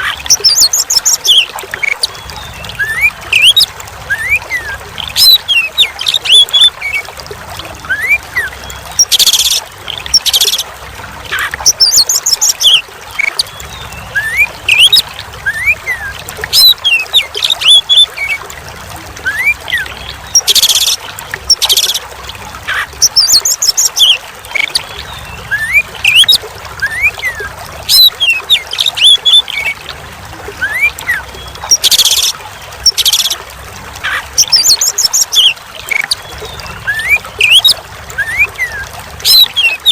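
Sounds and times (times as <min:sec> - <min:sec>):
trickling water: 0:00.0 - 0:39.9
bird singing whistles and trills: 0:00.3 - 0:07.0, 0:11.4 - 0:18.4, 0:22.7 - 0:29.8, 0:30.6 - 0:33.4, 0:34.1 - 0:39.9.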